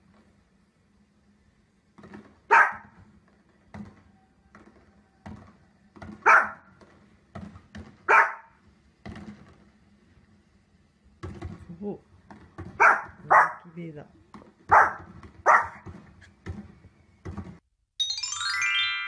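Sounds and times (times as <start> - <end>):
small dog barking: 2.5 - 3.0, 6.2 - 6.7, 8.0 - 8.6, 12.8 - 13.7, 14.7 - 15.9.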